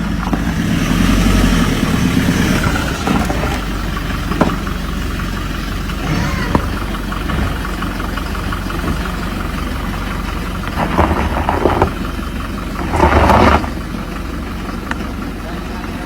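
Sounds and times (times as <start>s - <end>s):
rough engine noise bursts: 0.0s - 16.0s
truck engine running: 0.0s - 16.0s.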